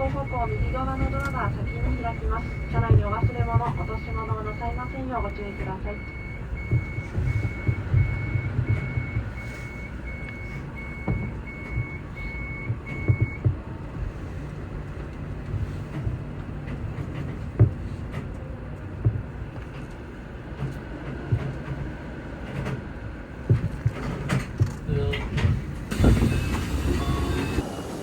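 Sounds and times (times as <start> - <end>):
knocks and clicks: 0.0 - 9.4, 10.2 - 13.6, 15.1 - 26.3
electronic warning beeper: 0.0 - 13.4
low train rumble: 0.0 - 28.0.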